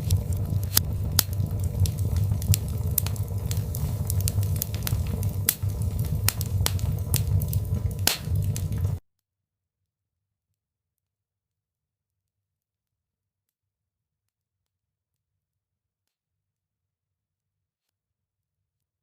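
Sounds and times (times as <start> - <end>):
fire pops and snaps: 0.0 - 9.0
low rumble: 0.0 - 9.0
wood fire crackling: 0.0 - 9.0.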